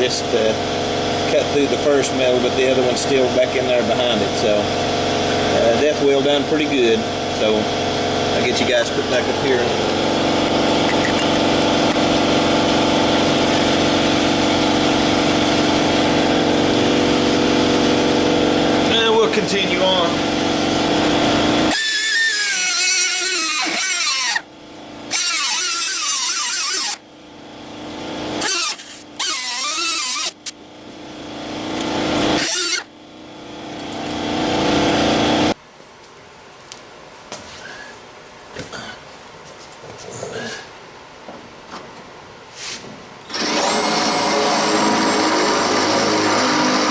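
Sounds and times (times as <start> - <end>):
machine motor humming: 0.0 - 35.6, 43.3 - 46.9
power tool cutting sheet steel: 9.9 - 24.5, 25.1 - 27.0, 28.3 - 30.6, 31.6 - 32.9, 43.3 - 46.9.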